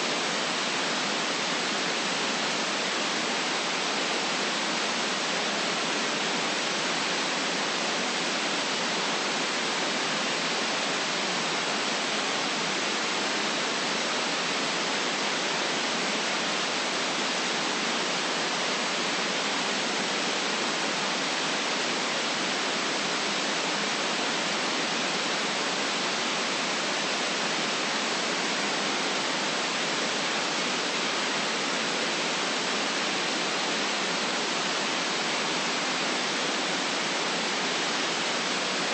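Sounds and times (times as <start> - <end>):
white noise hiss: 0.0 - 38.9.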